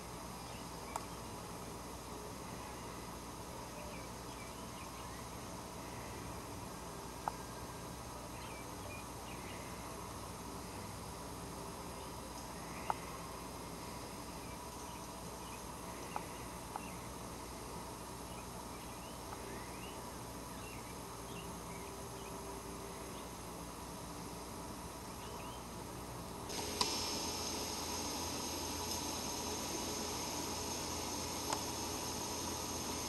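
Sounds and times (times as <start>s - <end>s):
faint birdsong chirps: 0.0s - 24.2s, 24.8s - 25.8s
loud steady hiss: 0.0s - 33.0s.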